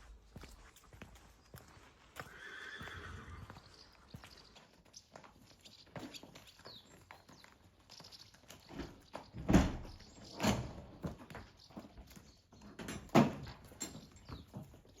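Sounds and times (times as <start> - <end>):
horses thudding and knocking: 4.6 - 15.0.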